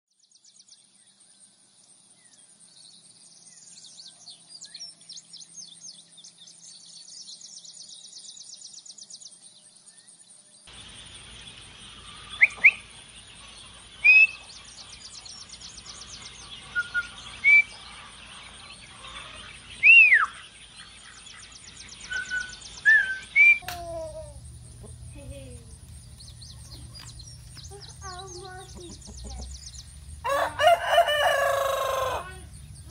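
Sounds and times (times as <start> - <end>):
ducklings peeping: 11.2 - 32.9.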